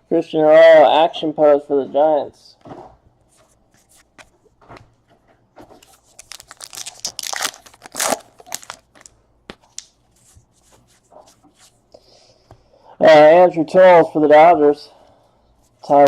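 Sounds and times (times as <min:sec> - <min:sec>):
wrapper tearing and crinkling: 0:05.8 - 0:09.1.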